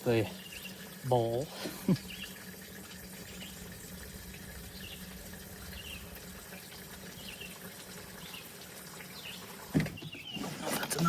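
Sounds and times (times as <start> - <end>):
fuel pouring into tank: 0.0 - 11.0.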